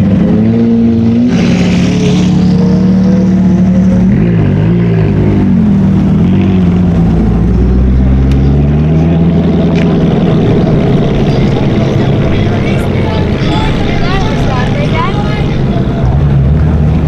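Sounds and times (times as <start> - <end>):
sports car engine revving: 0.0 - 17.0.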